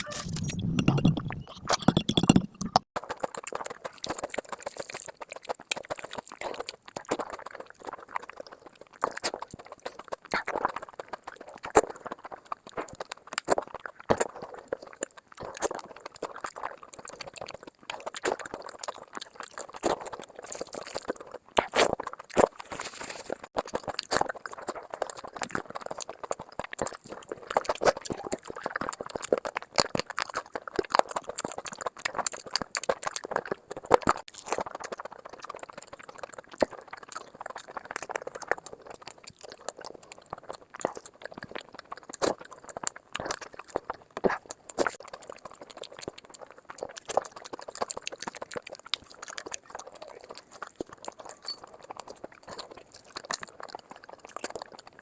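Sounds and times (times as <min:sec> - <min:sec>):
person chewing: 0:00.0 - 0:55.0
lip smacks: 0:23.6 - 0:55.0.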